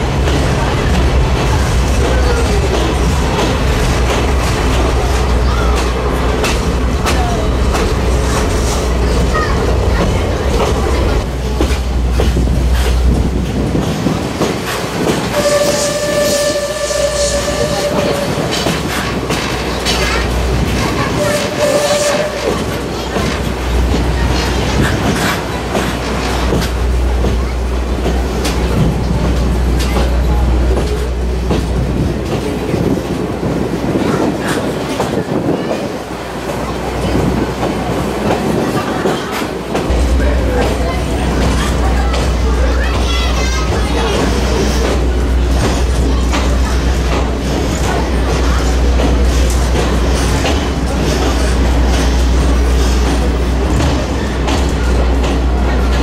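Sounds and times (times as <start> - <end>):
train rumble: 0.0 - 56.0
trolley car clickety-clack: 0.0 - 56.0
locomotive horn: 15.3 - 18.6, 21.1 - 22.8.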